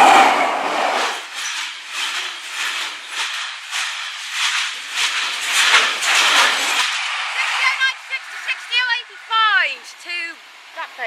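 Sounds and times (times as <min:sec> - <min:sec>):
freight train wheels on rail: 0:00.0 - 0:11.0.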